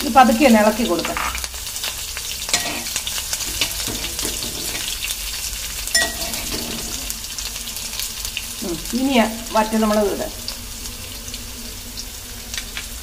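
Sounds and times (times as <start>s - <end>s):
food sizzling in hot oil: 0.0s - 13.0s
metal spoon stirring pot: 2.5s - 5.1s, 5.9s - 7.2s
sharp clink: 6.0s - 6.5s.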